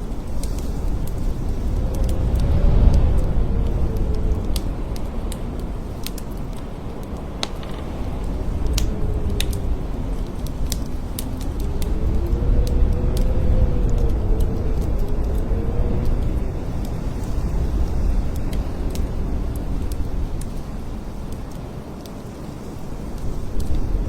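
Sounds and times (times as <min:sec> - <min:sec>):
blizzard wind howling: 0:00.0 - 0:24.0.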